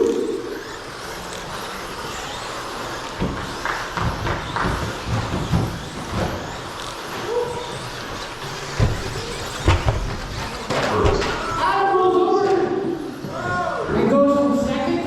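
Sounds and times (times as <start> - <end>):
toy truck motors and tyres: 0.0 - 15.0
trucks thudding on landing: 0.6 - 11.6.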